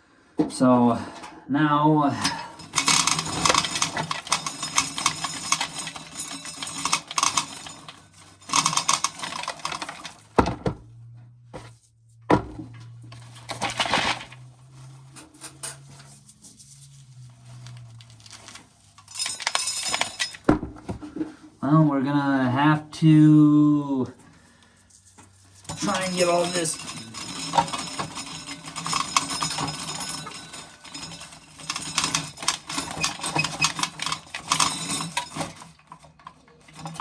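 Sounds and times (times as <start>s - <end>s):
corn kernels rattling into a pail: 2.5s - 10.4s, 13.2s - 15.0s, 15.6s - 20.5s, 25.6s - 37.0s.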